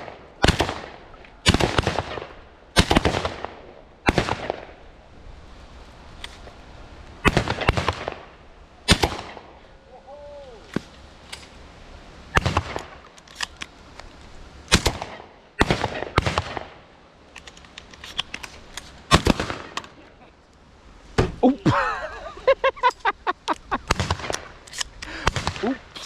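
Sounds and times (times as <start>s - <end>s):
faint distant gunshots: 0.0s - 4.8s, 7.2s - 9.6s, 14.7s - 16.8s
loud shotgun shots: 0.0s - 4.8s, 7.2s - 8.3s, 8.9s - 9.5s, 12.3s - 13.0s, 14.7s - 16.8s, 19.1s - 20.0s, 23.8s - 24.5s, 25.2s - 25.8s.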